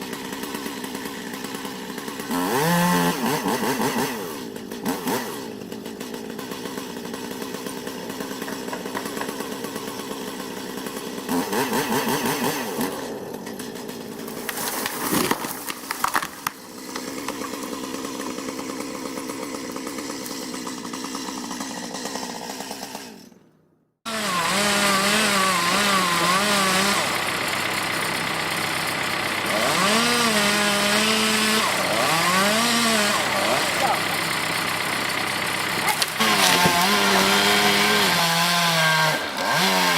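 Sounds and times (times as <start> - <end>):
chainsaw revving: 0.0 - 23.4, 24.0 - 39.9
sharp crack: 12.2 - 17.6, 33.1 - 38.2.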